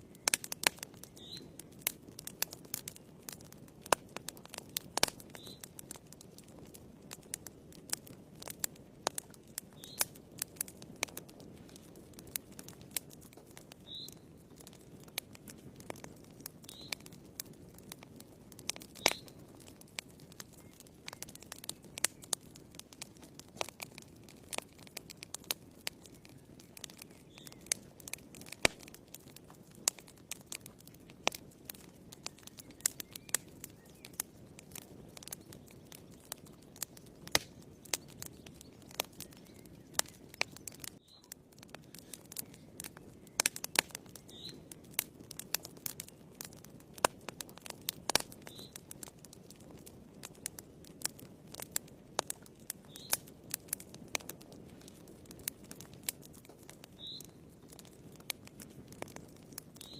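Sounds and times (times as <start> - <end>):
burning logs crackling and popping: 0.0 - 59.9
low rush of flame: 14.4 - 56.6.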